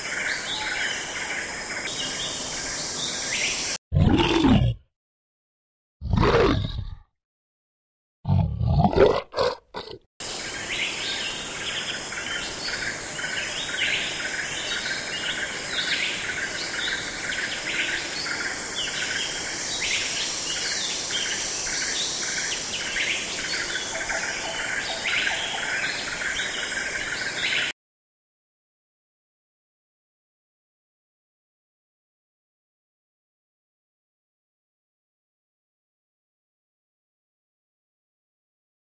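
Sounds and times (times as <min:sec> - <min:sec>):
bear grunting: 0:03.9 - 0:04.8, 0:06.0 - 0:07.0, 0:08.3 - 0:10.0
birds chirping: 0:09.8 - 0:27.7.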